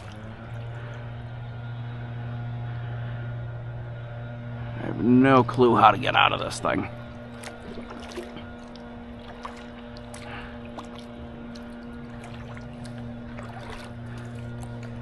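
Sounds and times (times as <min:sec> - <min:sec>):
water trickling and dripping: 0:00.0 - 0:01.0, 0:06.9 - 0:15.0
paddle splashes: 0:00.0 - 0:01.1, 0:06.6 - 0:15.0
steady low hum: 0:00.0 - 0:15.0.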